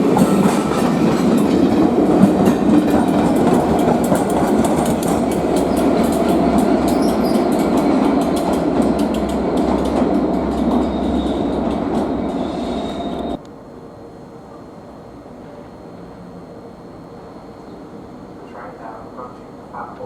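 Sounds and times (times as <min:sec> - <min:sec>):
train passing with wheel clicks: 0:00.0 - 0:13.6.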